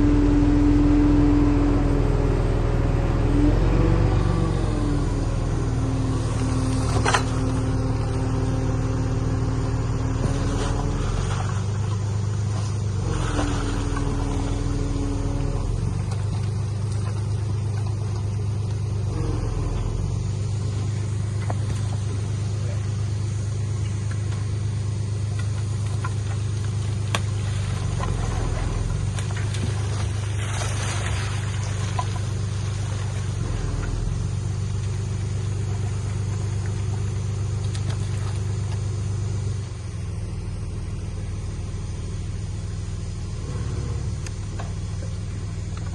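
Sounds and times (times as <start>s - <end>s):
heavy diesel engine running: 0.0s - 45.9s.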